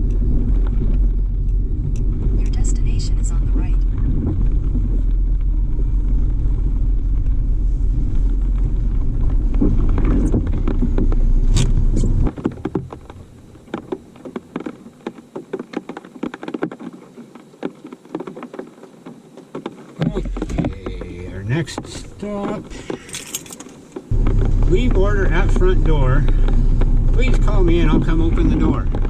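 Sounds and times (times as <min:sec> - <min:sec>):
car road and engine rumble: 0:00.0 - 0:29.0.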